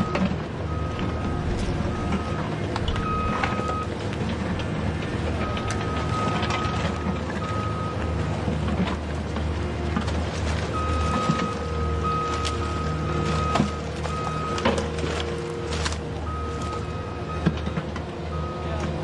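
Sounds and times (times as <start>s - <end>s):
reversing beeper: 0.0s - 4.0s, 5.2s - 8.2s, 10.7s - 18.9s
truck engine droning: 0.0s - 19.0s.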